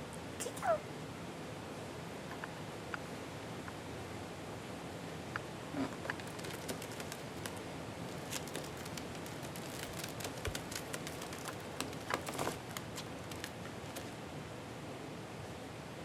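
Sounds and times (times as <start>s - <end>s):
light rustling: 6.0s - 14.2s.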